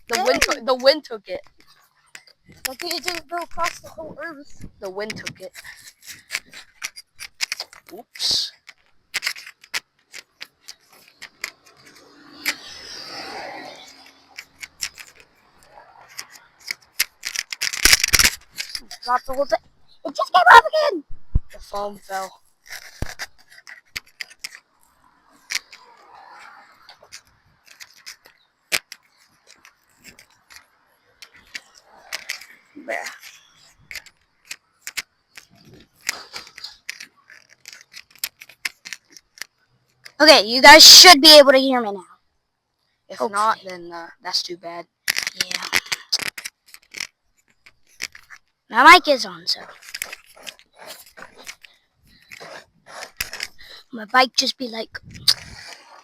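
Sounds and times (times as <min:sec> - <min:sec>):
microphone handling clicks and taps: 0:00.0 - 0:12.0, 0:21.1 - 0:24.6, 0:54.7 - 0:56.0
soft rustling: 0:49.2 - 0:56.0.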